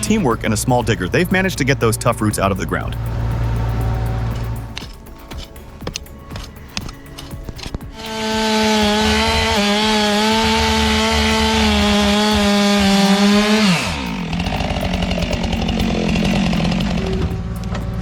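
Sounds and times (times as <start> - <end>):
chainsaw running: 8.0 - 18.0.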